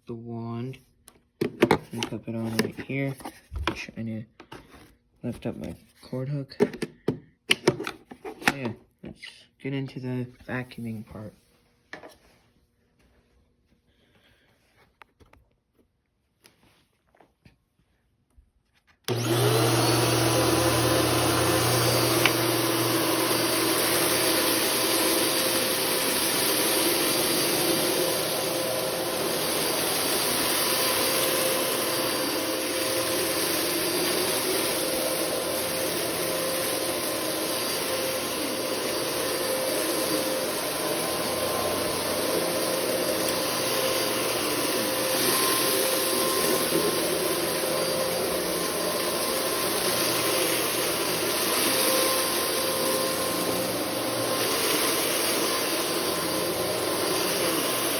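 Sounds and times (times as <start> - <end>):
vacuum cleaner whine: 19.0 - 57.9.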